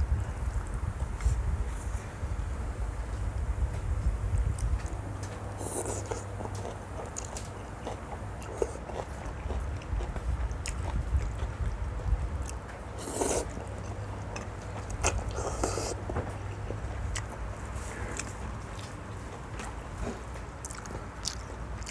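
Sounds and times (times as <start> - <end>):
person chewing with crunches: 4.4 - 11.8, 12.4 - 21.9.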